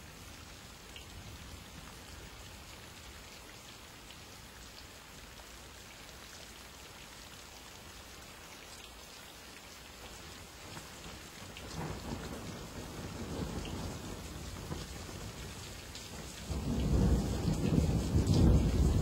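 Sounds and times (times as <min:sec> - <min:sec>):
raindrops ticking close by: 0:00.0 - 0:19.0
steady rain hiss: 0:00.0 - 0:19.0.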